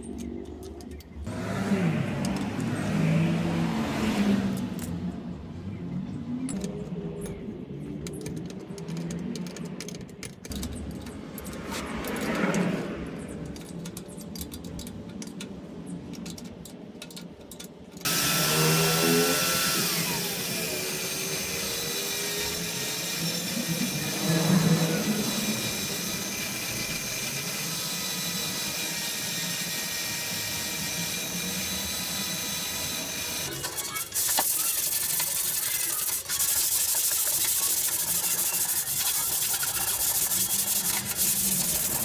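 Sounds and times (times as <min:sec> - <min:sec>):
power tool clicking: 0:18.0 - 0:42.0.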